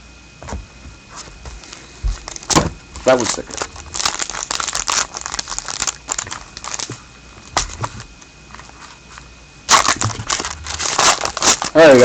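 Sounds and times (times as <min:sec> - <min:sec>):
cards being handled: 0:01.2 - 0:12.0
wrapper crinkling: 0:02.3 - 0:08.1, 0:09.7 - 0:12.0.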